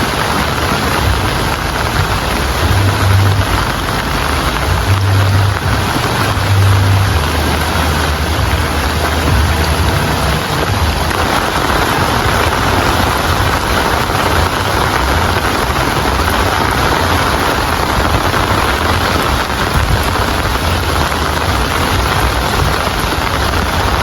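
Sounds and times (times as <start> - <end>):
heavy rain hissing: 0.0 - 24.0
low rumble: 0.0 - 24.0.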